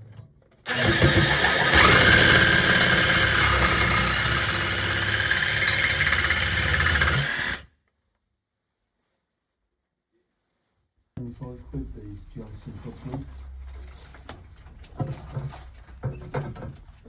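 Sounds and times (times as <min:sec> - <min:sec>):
loud motor running: 0:00.7 - 0:07.7.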